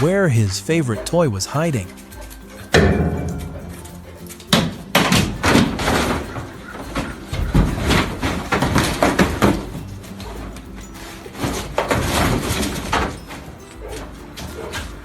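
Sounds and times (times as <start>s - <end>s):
dog banging on something hard: 2.2s - 10.6s.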